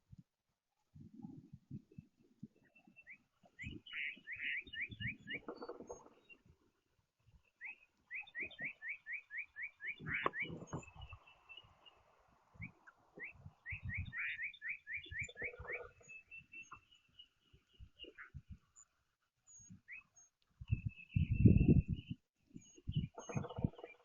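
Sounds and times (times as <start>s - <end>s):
songbird whistling: 2.8s - 6.1s, 7.5s - 11.8s, 12.5s - 17.3s.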